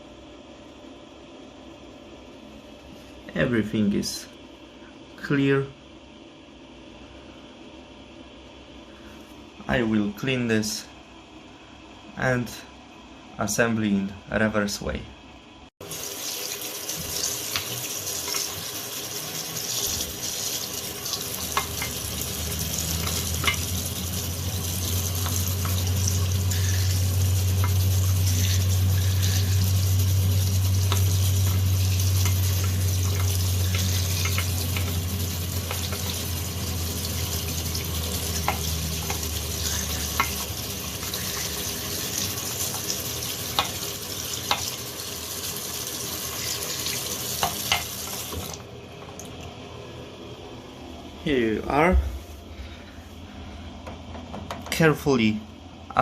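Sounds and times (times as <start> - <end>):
tap water running: 15.8 - 49.6
low hum: 21.3 - 41.9.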